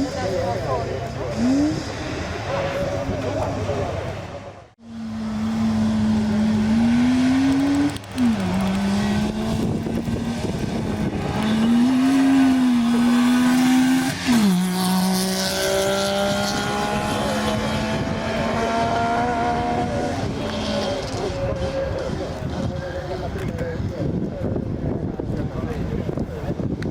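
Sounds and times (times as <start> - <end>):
rally car engine shifting gears: 5.0 - 22.9.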